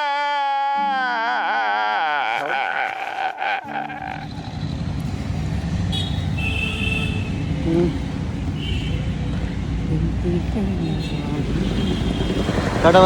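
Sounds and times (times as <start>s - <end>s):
vehicle rumbling on road: 3.7s - 13.0s.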